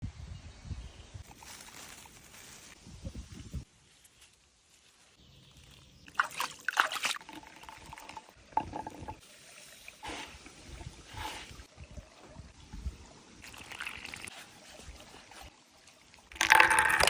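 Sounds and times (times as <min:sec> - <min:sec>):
water splashing and trickling: 0:05.1 - 0:17.0.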